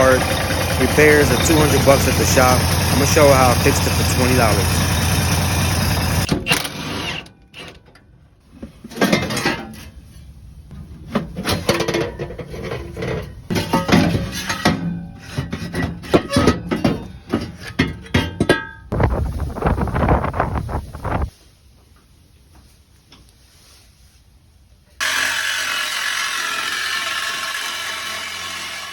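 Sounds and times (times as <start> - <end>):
hand tools clanking on metal: 0.0 - 5.0, 11.2 - 18.9
harsh dense noise: 18.9 - 21.3.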